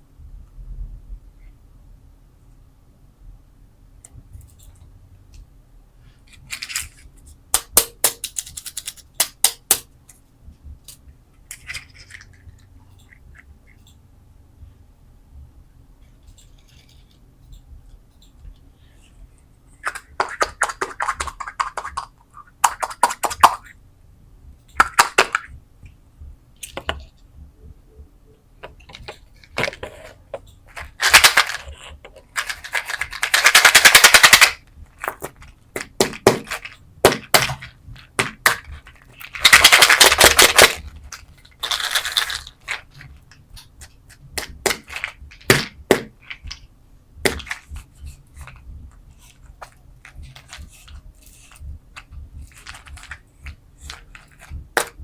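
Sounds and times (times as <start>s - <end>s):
candies rattling: 29.6s - 43.1s, 49.2s - 55.0s.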